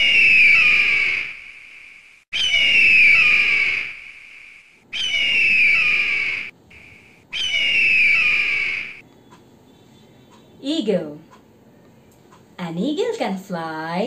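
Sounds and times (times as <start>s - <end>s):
peacock wailing calls: 0.0s - 1.5s, 2.3s - 9.0s.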